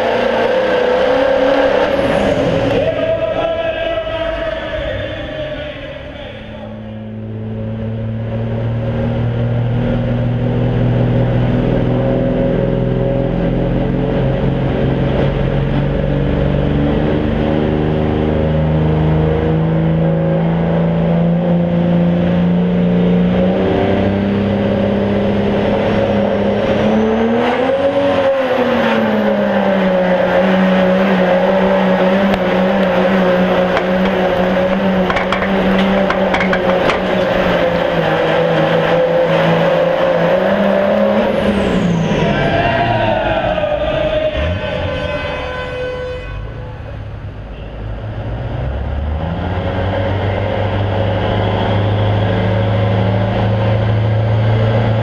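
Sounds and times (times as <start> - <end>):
diesel truck engine under load: 22.5 - 43.2.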